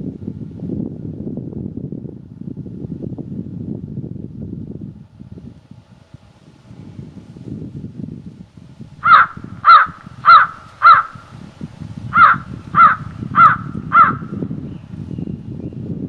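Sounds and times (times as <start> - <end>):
low wind rumble: 0.0 - 16.0
bird calling loudly: 9.0 - 11.3, 12.1 - 14.4.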